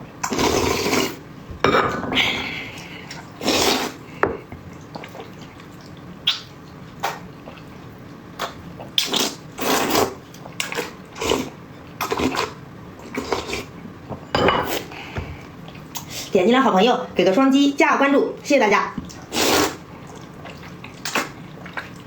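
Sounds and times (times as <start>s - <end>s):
wet chewing and slurping: 3.1s - 13.8s, 19.0s - 22.0s.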